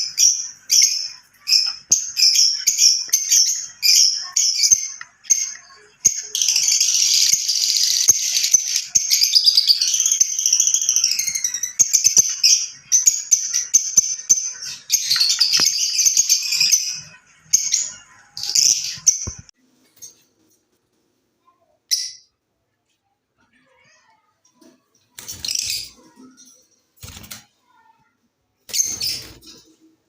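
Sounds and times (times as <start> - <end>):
lovebirds chirping: 0.0 - 20.2, 28.6 - 29.9.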